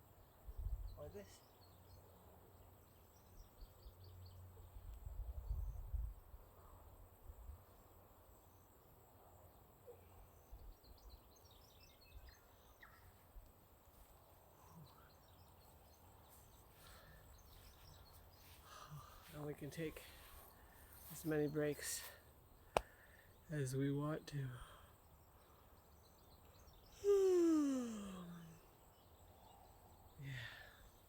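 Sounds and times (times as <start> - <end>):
faint bird chirps: 9.6 - 19.4, 24.9 - 31.0.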